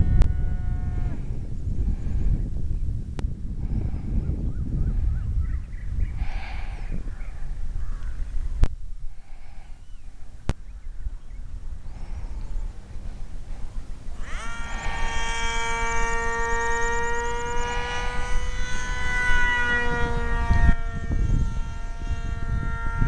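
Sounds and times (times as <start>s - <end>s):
rc plane motor whine: 0.0s - 4.3s, 11.9s - 23.0s
low rumbling microphone noise: 0.0s - 23.0s.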